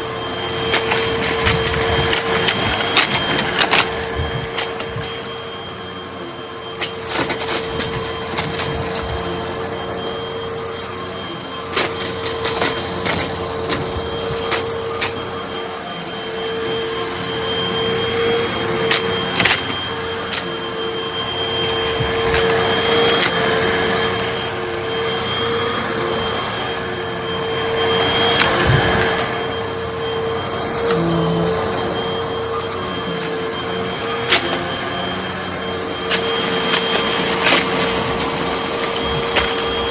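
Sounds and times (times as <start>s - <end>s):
vacuum cleaner motor whine: 0.0s - 39.9s
debris crackling in vacuum: 0.1s - 5.6s.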